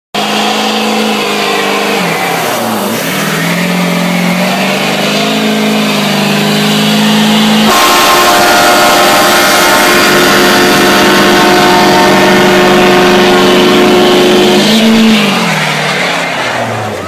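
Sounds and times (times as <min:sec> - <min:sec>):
car engine revving: 0:00.1 - 0:17.0.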